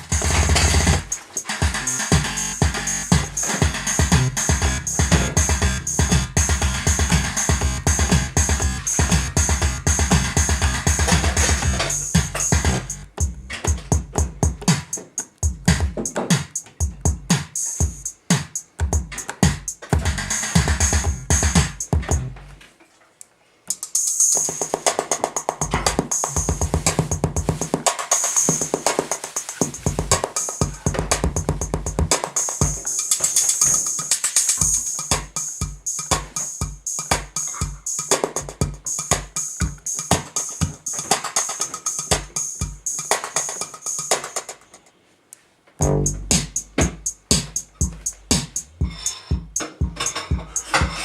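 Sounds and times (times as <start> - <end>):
synthesizer drum machine patterns: 0.0 - 22.6, 23.7 - 44.8, 45.8 - 51.0.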